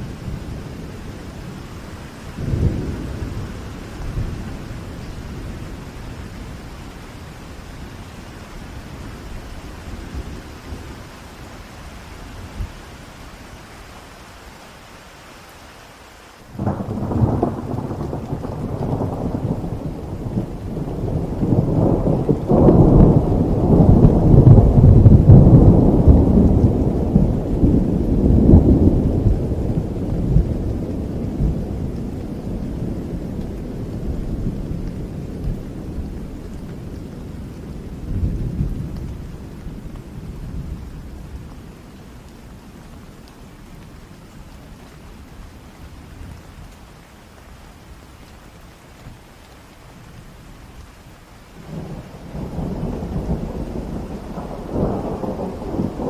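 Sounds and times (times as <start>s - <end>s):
steady rain: 0.0s - 56.0s
rolling thunder: 2.3s - 6.7s, 16.6s - 41.8s, 51.6s - 56.0s.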